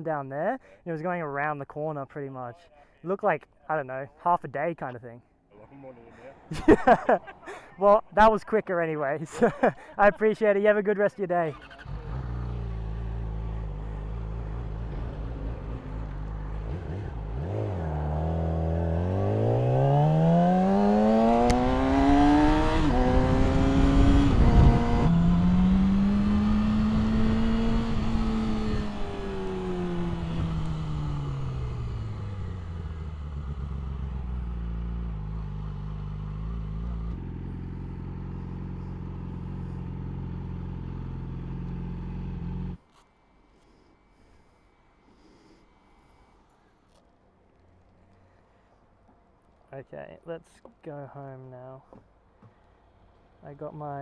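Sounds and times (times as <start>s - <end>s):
motorcycle engine idling and revving: 11.5s - 42.9s, 52.0s - 54.0s.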